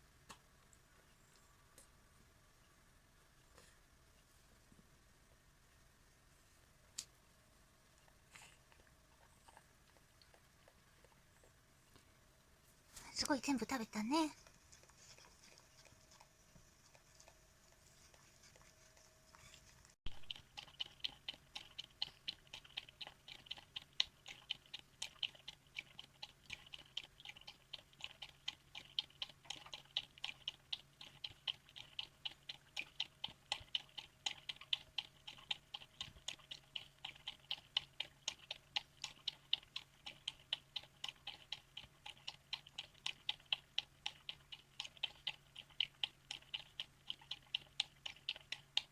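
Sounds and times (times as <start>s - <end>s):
dog lapping from a bowl: 14.4s - 48.9s.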